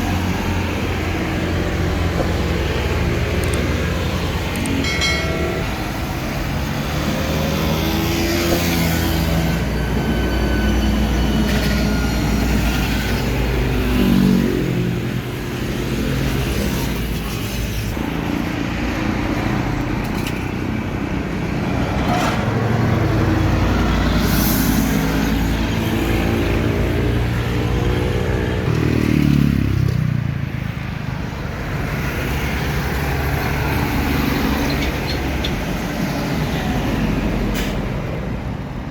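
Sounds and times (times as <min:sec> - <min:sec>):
trucks passing by: 0:00.0 - 0:38.9.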